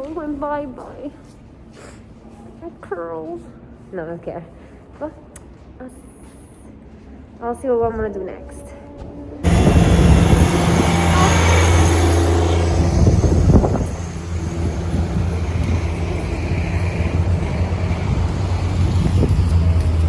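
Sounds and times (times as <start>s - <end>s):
street noise: 0.0s - 20.0s
vehicle engine humming: 7.6s - 20.0s.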